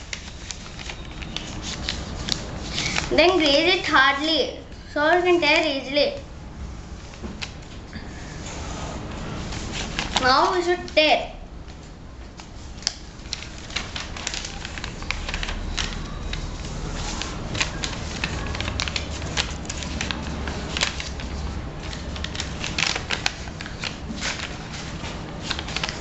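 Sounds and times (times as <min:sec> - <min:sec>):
paper tearing: 0:12.8 - 0:26.0.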